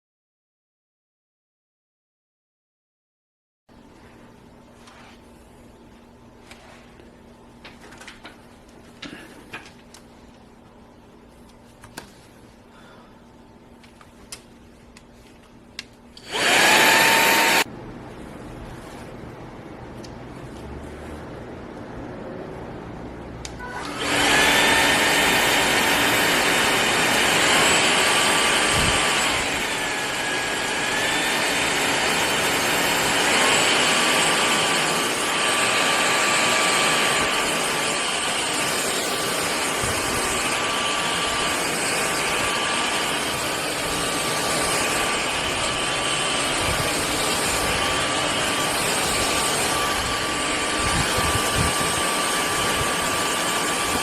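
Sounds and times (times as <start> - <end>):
stick vacuum cleaner running: 16.2 - 17.7, 23.5 - 54.0.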